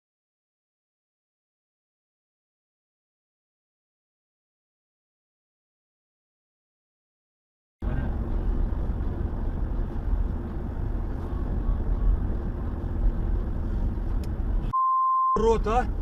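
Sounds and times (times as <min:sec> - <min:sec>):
car engine and road noise: 0:07.8 - 0:16.0.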